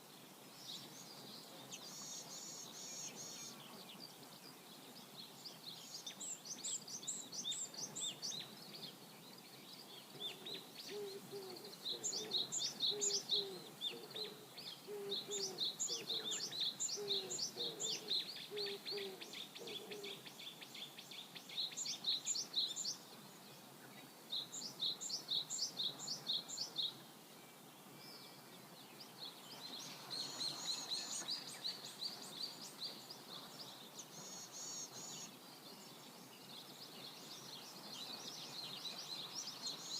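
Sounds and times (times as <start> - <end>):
low evenly spaced bird calls: 0.0 - 39.9
river water hiss: 0.0 - 39.9
songbird trilling: 10.2 - 20.3.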